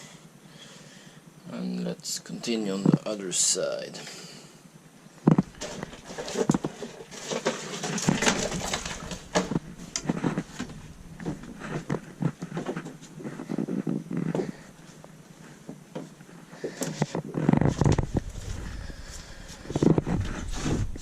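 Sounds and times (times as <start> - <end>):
rustling and knocking of mats: 5.2 - 21.0.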